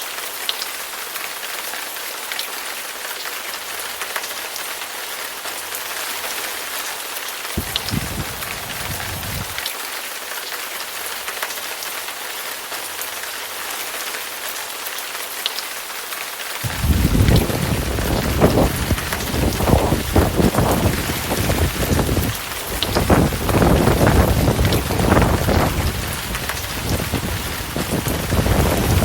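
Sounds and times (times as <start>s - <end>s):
heavy rain hissing: 0.0s - 29.0s
rain drop ticks: 7.4s - 13.9s, 16.6s - 29.0s
thunder rumble: 7.6s - 9.7s, 16.6s - 29.0s.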